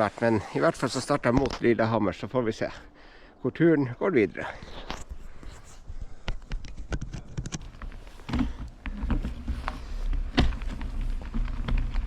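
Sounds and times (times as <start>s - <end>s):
bicycle clicks and knocks: 6.2s - 12.0s
bike rolling rumble: 7.6s - 12.0s.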